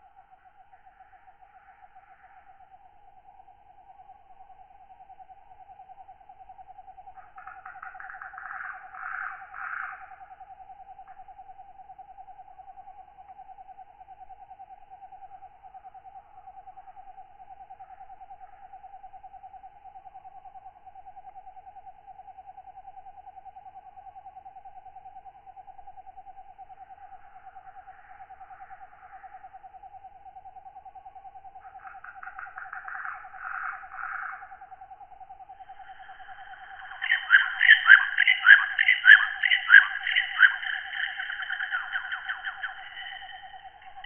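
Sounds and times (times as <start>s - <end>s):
katydid raspy calls: 7.2s - 10.2s, 31.6s - 34.8s, 35.5s - 44.0s
fast-pulsing insect trill: 26.6s - 44.0s.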